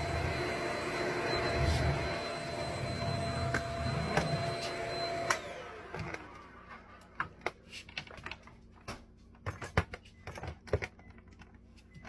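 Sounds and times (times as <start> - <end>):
vacuum motor whine: 0.0 - 7.1.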